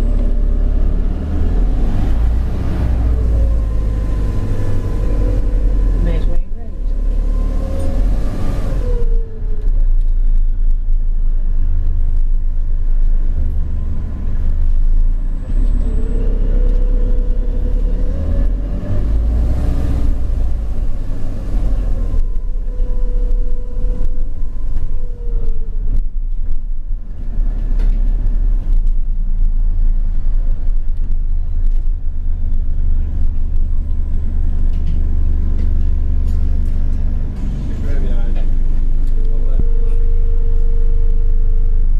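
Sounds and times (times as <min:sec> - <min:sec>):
bus low rumble: 0:00.0 - 0:41.9
humming tone sliding in pitch: 0:39.2 - 0:41.8.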